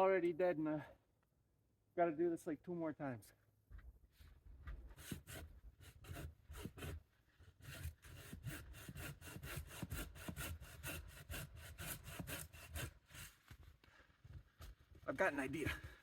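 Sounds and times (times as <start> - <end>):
handsaw cutting wood: 5.0 - 13.4.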